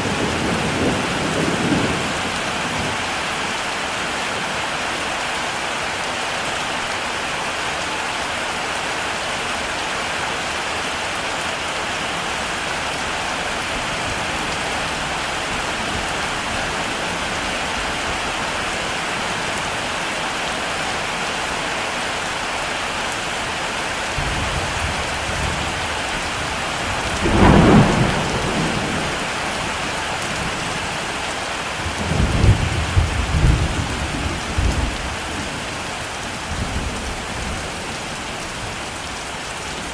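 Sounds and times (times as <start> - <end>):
thunder rumbling: 0.0 - 3.0, 24.2 - 30.8
heavy rain falling: 0.0 - 39.9
loud thunderclap: 26.9 - 29.4.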